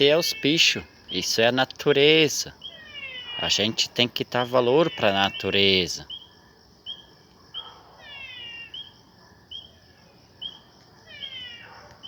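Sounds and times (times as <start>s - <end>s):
frogs calling: 0.0s - 12.0s.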